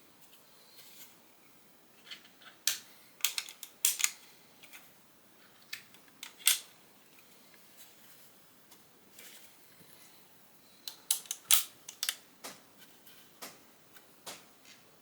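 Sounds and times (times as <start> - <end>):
plastic bricks clicking together: 10.9 - 12.2.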